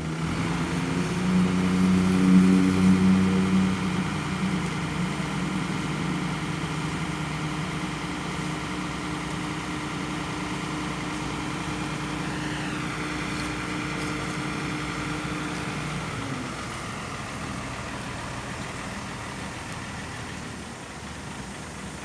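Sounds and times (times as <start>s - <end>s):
engine idling: 0.0s - 22.0s
short falling whine: 11.0s - 19.0s.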